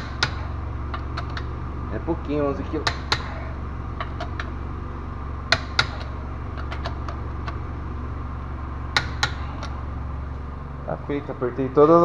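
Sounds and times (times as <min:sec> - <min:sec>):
wrench clicking on wheel nuts: 0:00.0 - 0:10.0
steady low hum: 0:00.0 - 0:12.0.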